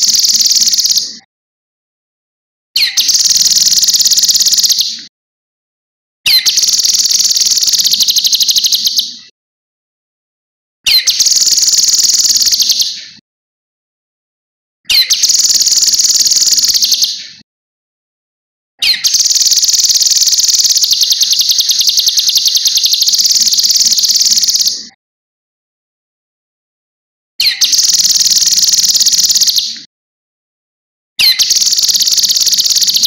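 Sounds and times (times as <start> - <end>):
bird singing high rapid trills: 0.0 - 1.1, 2.8 - 4.9, 6.3 - 9.2, 10.9 - 13.0, 14.9 - 17.2, 18.8 - 24.9, 27.4 - 29.8, 31.2 - 33.0.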